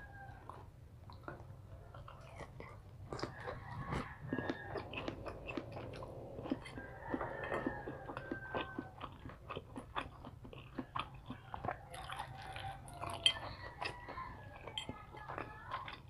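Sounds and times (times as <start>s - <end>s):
chewing crunchy fried food: 0.0s - 16.0s
wet mouth sounds: 1.0s - 16.0s.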